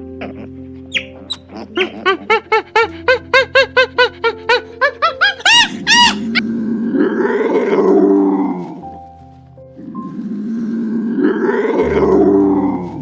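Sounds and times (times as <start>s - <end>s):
big cat roaring: 6.3s - 8.8s, 9.8s - 13.0s.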